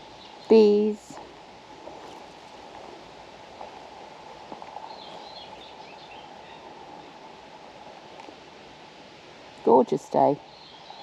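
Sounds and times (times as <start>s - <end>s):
faint marsh rustle: 0.0s - 11.0s.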